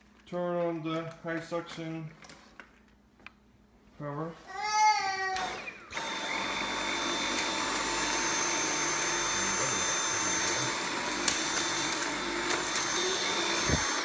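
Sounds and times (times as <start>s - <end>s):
vacuum cleaner motor whine: 5.4s - 14.0s.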